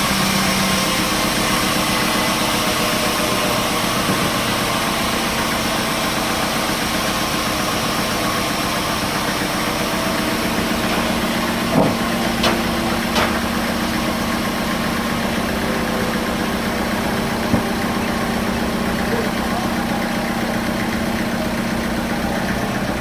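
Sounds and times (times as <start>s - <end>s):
sawmill machinery humming: 0.0s - 23.0s
short knocks: 10.8s - 13.6s.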